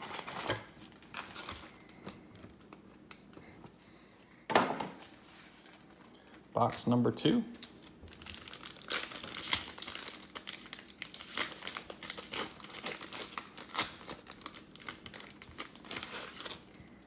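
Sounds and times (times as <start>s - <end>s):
plastic wrapping crinkling and tearing: 0.0s - 3.3s, 7.5s - 17.0s.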